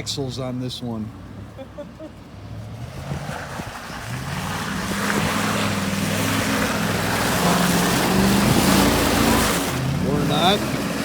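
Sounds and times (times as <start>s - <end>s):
truck engine pulling under load: 2.1s - 11.0s
water splashing from tyres: 2.6s - 11.0s.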